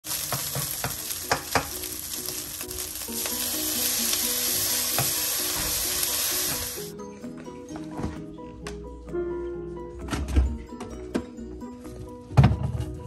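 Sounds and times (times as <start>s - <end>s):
rice sizzling in a skillet: 0.0s - 6.9s.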